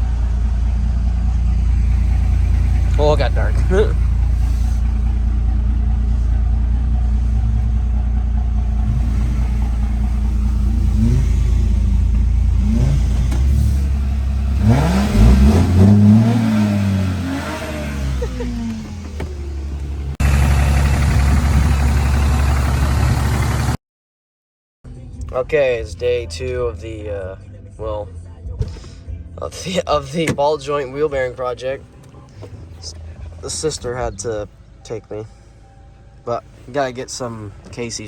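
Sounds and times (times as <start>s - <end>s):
diesel pickup truck engine revving: 0.0s - 23.8s.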